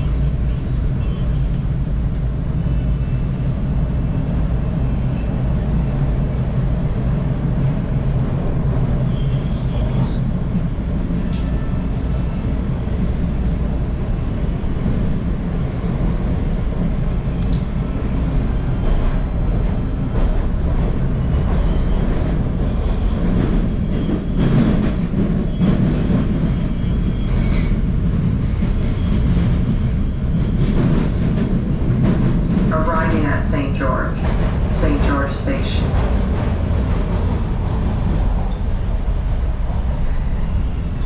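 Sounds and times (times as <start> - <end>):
train wheels rumbling on rails: 0.0 - 41.0
rail clacks: 6.2 - 38.8.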